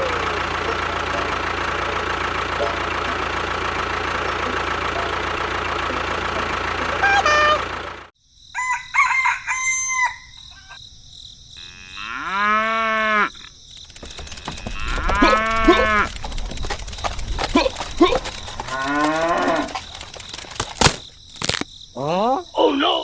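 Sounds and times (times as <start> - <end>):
motor running: 0.0 - 8.1, 13.8 - 21.6
cow mooing: 11.6 - 13.5, 14.6 - 16.2, 18.6 - 19.8
chickens clucking: 13.9 - 20.3.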